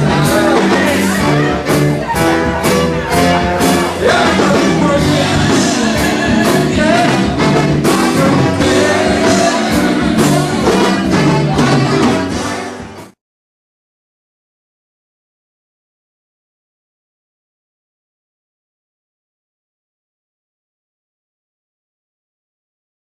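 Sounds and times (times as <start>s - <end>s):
person singing: 0.0s - 13.1s
brass: 0.0s - 13.2s
live band music: 0.0s - 13.2s.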